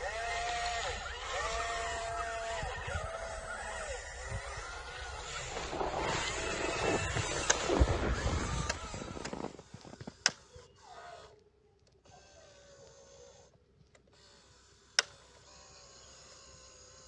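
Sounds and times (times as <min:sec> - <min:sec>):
scraping grinding noise: 0:00.0 - 0:10.8
toy electric motor whining: 0:00.0 - 0:17.0
small clicks: 0:12.8 - 0:15.5.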